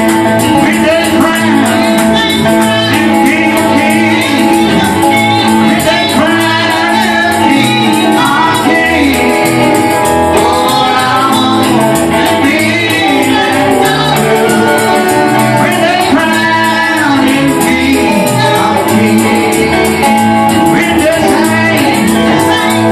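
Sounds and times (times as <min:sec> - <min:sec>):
gospel singing: 0:00.0 - 0:22.9
steady beat: 0:00.0 - 0:22.9
tambourine shaking: 0:00.0 - 0:22.9.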